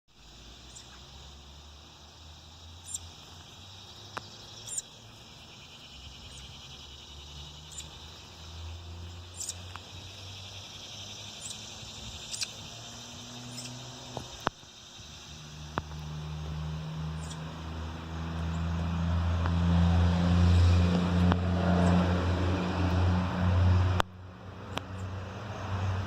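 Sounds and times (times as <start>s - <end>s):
insect trilling: 0.1s - 20.9s.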